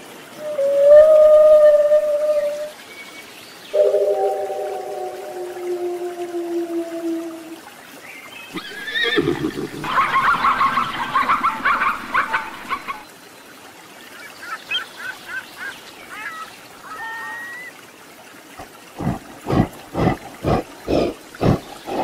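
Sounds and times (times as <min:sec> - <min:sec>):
gorilla low sounds: 0:19.0 - 0:22.0.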